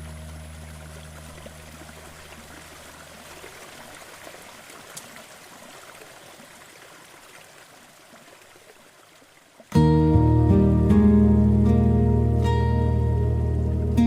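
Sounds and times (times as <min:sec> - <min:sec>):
low guitar note ringing: 0:09.8 - 0:14.0.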